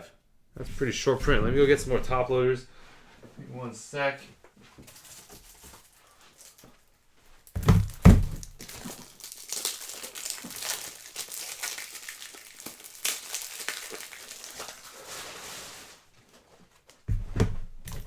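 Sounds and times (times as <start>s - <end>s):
plastic packaging crinkling: 4.8s - 17.0s
heavy thumps: 7.6s - 8.5s.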